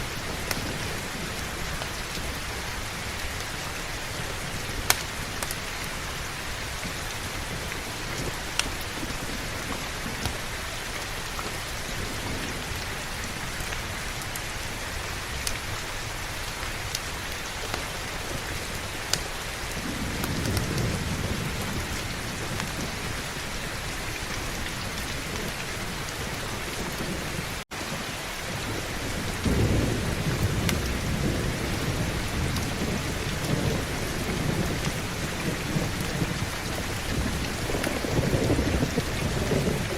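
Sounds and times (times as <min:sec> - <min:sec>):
heavy rainfall: 0:00.0 - 0:39.9
low rolling thunder: 0:17.7 - 0:39.9.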